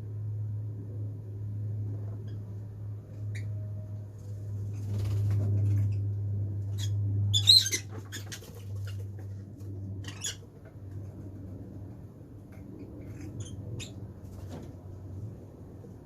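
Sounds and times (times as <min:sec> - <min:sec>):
steady low hum: 0:00.0 - 0:16.0
lovebirds chirping and squeaking: 0:03.2 - 0:03.6, 0:04.7 - 0:09.4, 0:10.0 - 0:11.1, 0:12.6 - 0:14.6.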